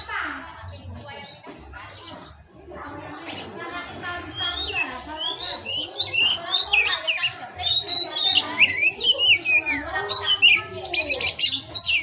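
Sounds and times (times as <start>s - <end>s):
bird rapid chattering: 0.0s - 12.0s
bird singing whistles: 4.3s - 12.0s.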